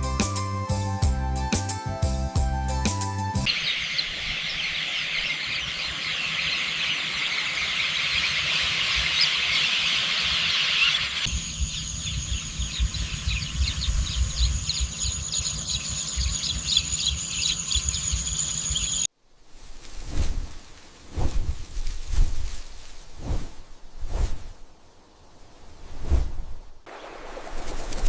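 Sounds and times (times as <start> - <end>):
birds chirping: 3.5 - 19.1
insects chirping: 3.5 - 28.0
high-pitched insect buzz: 11.3 - 19.1.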